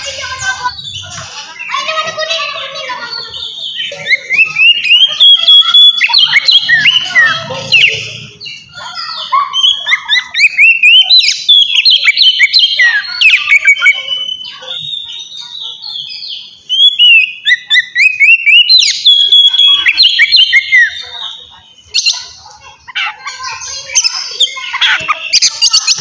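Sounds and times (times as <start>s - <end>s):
bird singing whistled song: 3.5s - 8.6s, 9.6s - 21.0s.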